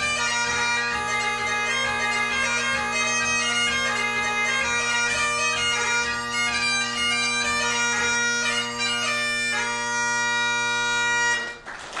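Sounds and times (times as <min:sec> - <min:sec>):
bagpipe playing over drones: 0:00.0 - 0:11.7
applause: 0:11.4 - 0:12.0.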